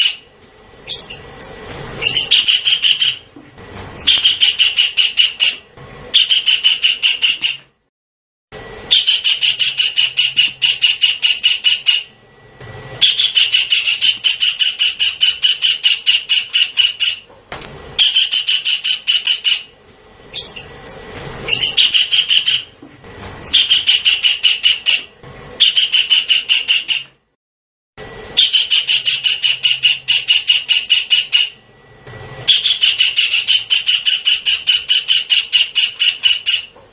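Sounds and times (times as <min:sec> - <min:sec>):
kingfisher harsh rattling calls: 0:00.9 - 0:03.3, 0:04.0 - 0:07.6, 0:08.9 - 0:12.1, 0:13.0 - 0:17.2, 0:18.0 - 0:19.7, 0:20.3 - 0:22.7, 0:23.4 - 0:27.0, 0:28.4 - 0:31.6, 0:32.5 - 0:36.7.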